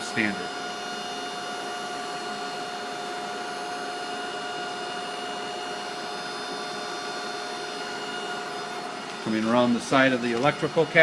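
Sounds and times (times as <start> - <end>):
machinery hum with whining tones: 0.0 - 11.0.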